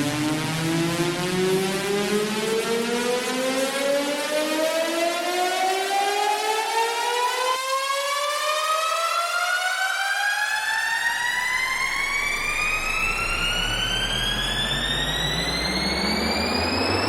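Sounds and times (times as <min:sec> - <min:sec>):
synthesized rising tone: 0:10.8 - 0:17.0
deep bass notes: 0:11.2 - 0:17.0.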